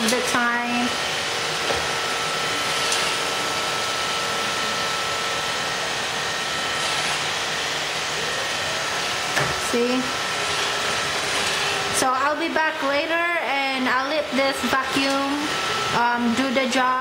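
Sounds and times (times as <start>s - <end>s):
robot vacuum whirring: 0.0s - 13.1s.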